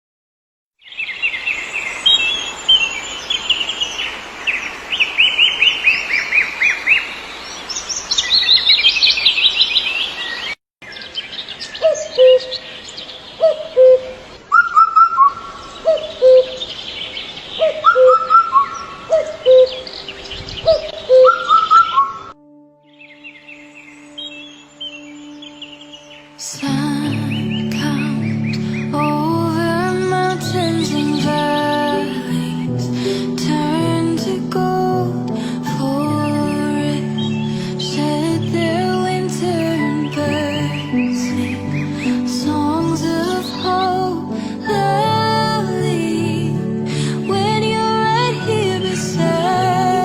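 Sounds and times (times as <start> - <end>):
birds chirping and trilling: 0.8 - 33.4, 35.8 - 38.2.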